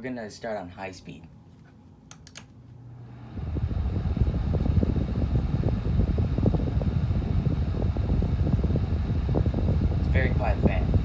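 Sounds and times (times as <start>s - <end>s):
table fan blowing air: 2.9s - 11.0s.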